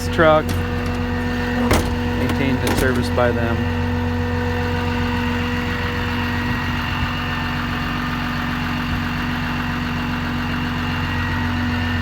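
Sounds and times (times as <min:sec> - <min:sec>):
constant whine: 0:00.0 - 0:05.8
diesel engine idling: 0:00.0 - 0:12.0.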